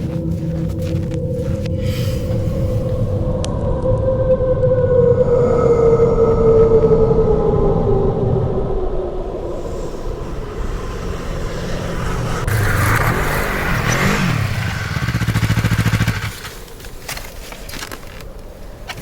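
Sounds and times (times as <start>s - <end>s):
vehicle engine running: 9.8s - 17.2s.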